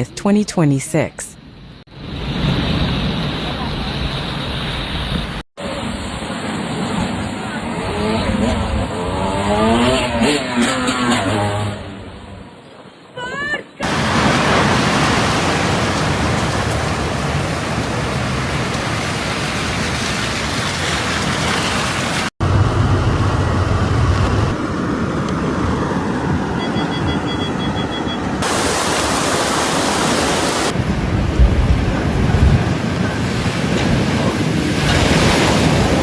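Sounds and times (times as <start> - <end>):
wind: 0.0 - 36.0
heavy rain: 13.8 - 24.5, 28.4 - 36.0.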